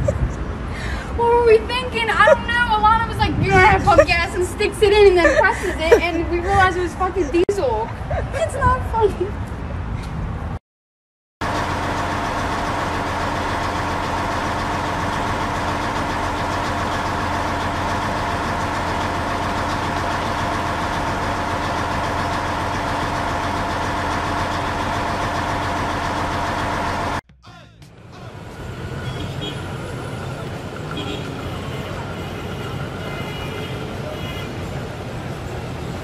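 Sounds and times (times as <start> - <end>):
car engine idling: 11.4 - 27.2.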